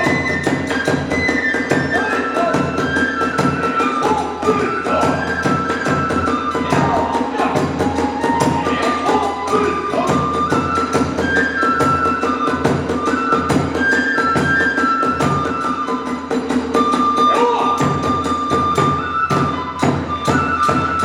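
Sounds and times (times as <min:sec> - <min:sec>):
bamboo flute melody: 0:00.0 - 0:21.0
drums beating: 0:00.0 - 0:21.0.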